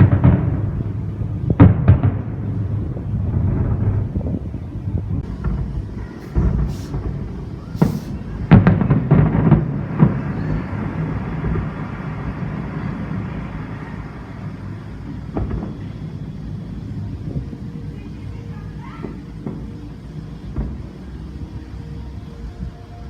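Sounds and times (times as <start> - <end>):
loud firework cracks: 0.0 - 4.1, 5.2 - 17.0, 18.8 - 21.3
wind on microphone: 0.0 - 18.2
fireworks booming: 0.0 - 22.7.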